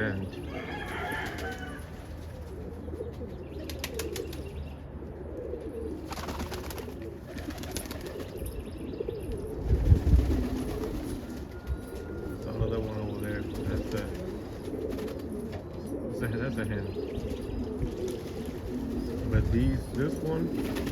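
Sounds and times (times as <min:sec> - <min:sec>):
pigeons cooing: 0:00.0 - 0:20.9
wing flaps: 0:06.0 - 0:08.5, 0:09.7 - 0:12.0, 0:13.5 - 0:15.7, 0:17.9 - 0:20.9.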